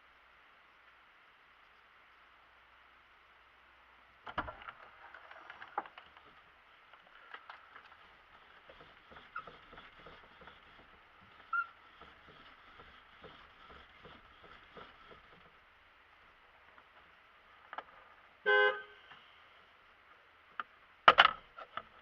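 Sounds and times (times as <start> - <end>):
steering wheel creaking and squeaking: 7.5 - 15.6.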